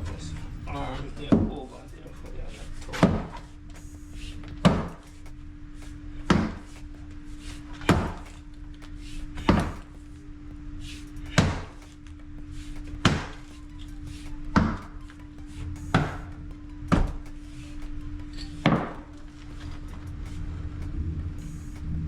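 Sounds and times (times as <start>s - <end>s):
hammer blows ringing: 0.0s - 10.2s, 10.8s - 21.8s
steady low hum: 0.0s - 22.0s.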